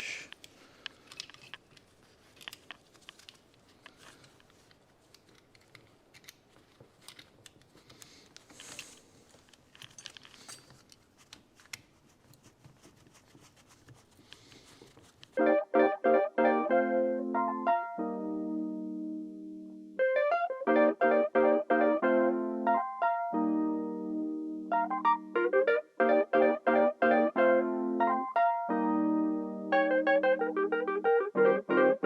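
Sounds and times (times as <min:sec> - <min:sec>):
hands handling parts: 0:00.3 - 0:15.4.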